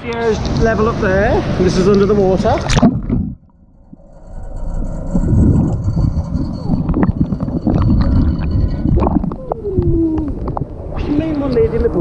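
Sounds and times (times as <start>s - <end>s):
underwater churning water: 5.2s - 11.0s.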